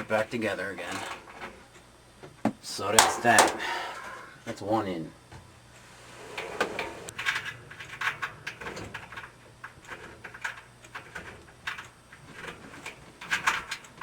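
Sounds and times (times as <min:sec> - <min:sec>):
knocks and rattles of metal drum: 0:02.9 - 0:04.0.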